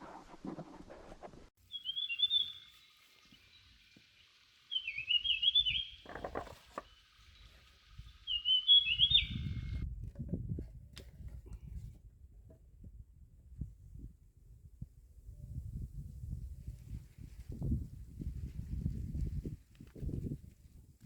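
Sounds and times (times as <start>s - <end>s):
small bird singing: 1.6s - 9.8s.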